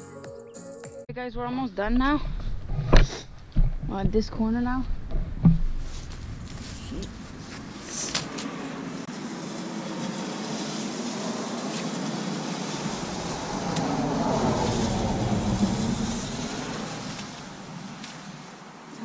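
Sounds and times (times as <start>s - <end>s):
vehicle passing: 4.4s - 19.0s.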